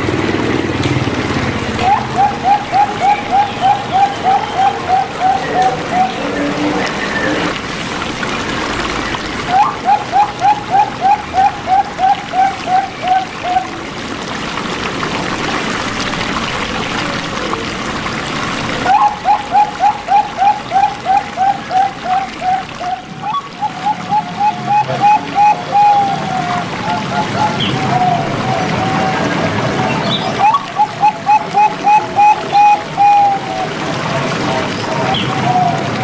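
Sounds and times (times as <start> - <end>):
dove cooing: 1.7 - 7.6, 9.4 - 13.8, 18.8 - 33.9, 34.5 - 36.0.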